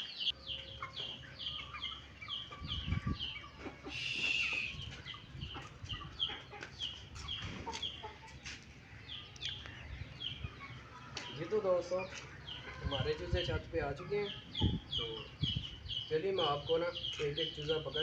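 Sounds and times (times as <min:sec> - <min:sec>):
chickens peeping: 0:00.0 - 0:18.0
chicken squawk: 0:01.6 - 0:06.7.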